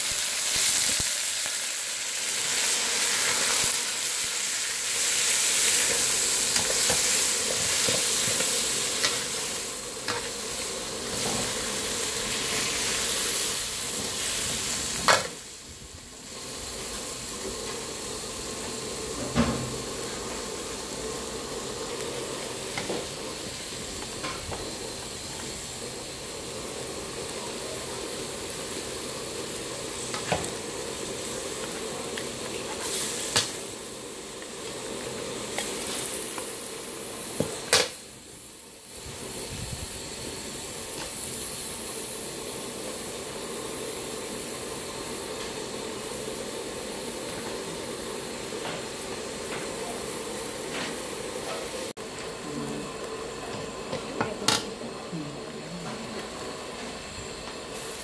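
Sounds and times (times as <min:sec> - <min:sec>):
squid sizzling in a wok: 0:00.0 - 0:58.0
spatula knocking and scraping wok: 0:10.0 - 0:10.4.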